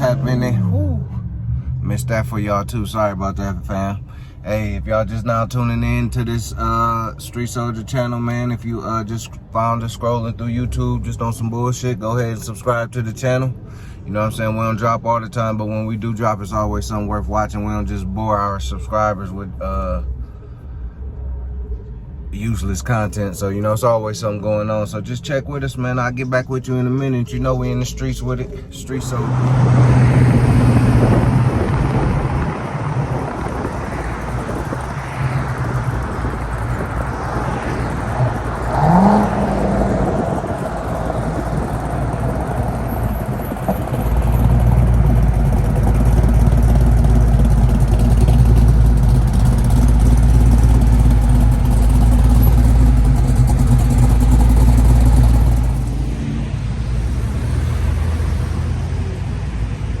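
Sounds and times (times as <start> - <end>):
car engines in traffic: 0.0 - 60.0
deep engine rumble: 0.0 - 60.0
rising engine note: 29.0 - 59.6.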